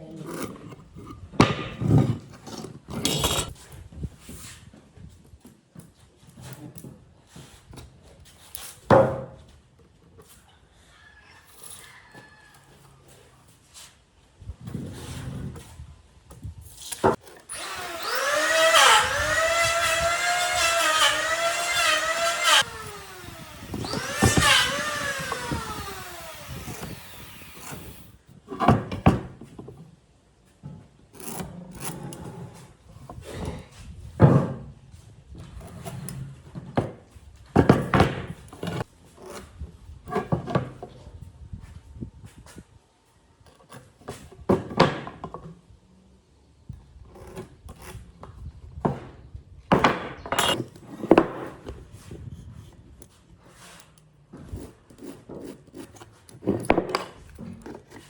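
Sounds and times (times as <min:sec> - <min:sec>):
power tool motor whining: 0:17.4 - 0:28.2.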